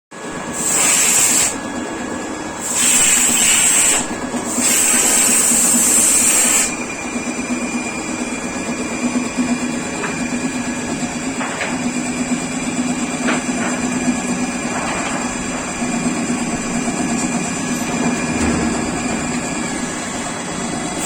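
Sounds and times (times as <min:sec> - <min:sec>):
lathe machine humming: 0:00.3 - 0:21.0
hissing spray bursts: 0:00.6 - 0:01.6, 0:02.6 - 0:06.8.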